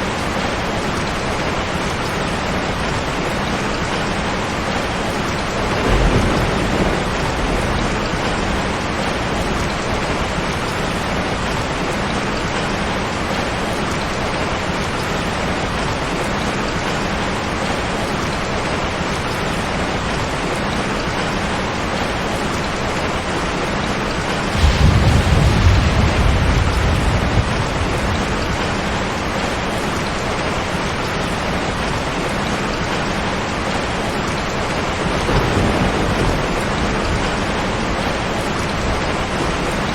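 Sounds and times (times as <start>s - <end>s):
heavy rain: 0.0s - 39.9s
thunder rumble: 5.0s - 11.7s, 24.5s - 32.0s, 34.6s - 39.9s.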